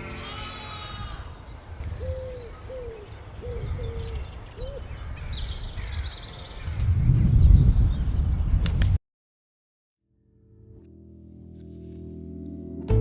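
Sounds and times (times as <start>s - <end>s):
low wind rumble: 0.8s - 9.0s
wood pigeon cooing: 1.8s - 5.0s.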